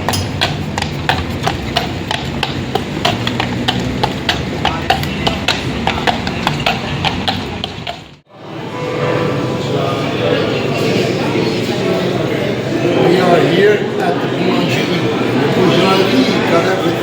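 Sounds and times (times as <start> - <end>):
sharp irregular taps: 0.0 - 8.2
low street hum: 0.0 - 17.0.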